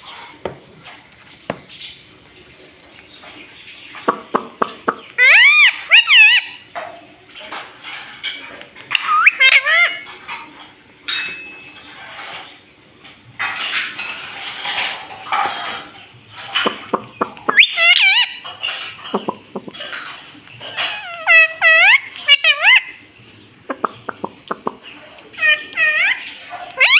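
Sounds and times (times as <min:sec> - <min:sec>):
parakeet squawking: 0:04.2 - 0:06.7, 0:08.9 - 0:10.1, 0:16.9 - 0:18.5, 0:20.7 - 0:23.1, 0:23.7 - 0:26.9.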